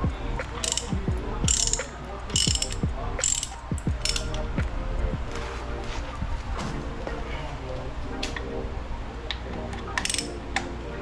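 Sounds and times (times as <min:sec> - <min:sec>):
ratchet wrench clicking: 0:00.5 - 0:04.4, 0:10.0 - 0:10.4.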